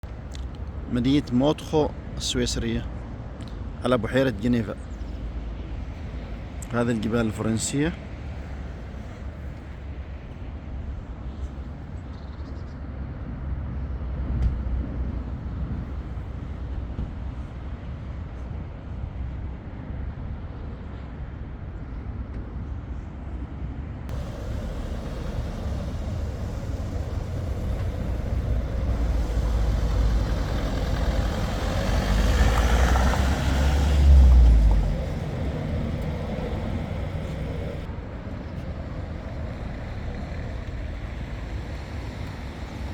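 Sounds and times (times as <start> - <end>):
low outdoor rumble: 24.1 - 42.9.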